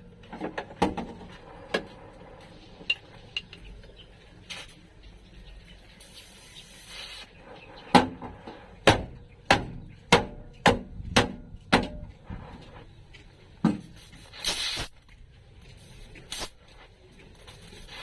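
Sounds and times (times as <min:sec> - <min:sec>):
hammer striking sheet metal: 0:08.0 - 0:12.5.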